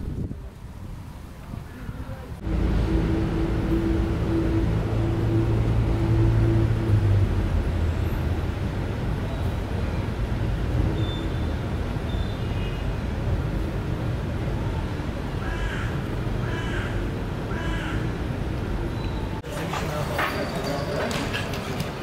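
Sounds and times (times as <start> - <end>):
low outdoor rumble: 0.0 - 10.9.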